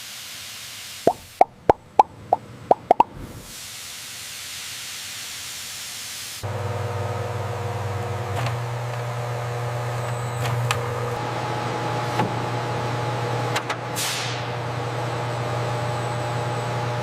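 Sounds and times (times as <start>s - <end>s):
steady hiss: 0.0s - 1.4s, 3.2s - 6.4s
short plopping pops: 1.1s - 3.1s
low machine hum: 6.4s - 13.5s.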